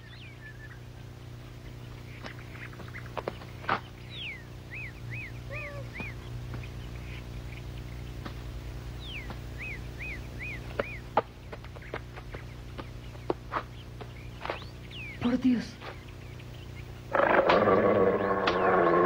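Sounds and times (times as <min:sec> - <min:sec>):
bird singing: 0:00.0 - 0:19.0
steady low hum: 0:00.0 - 0:19.0.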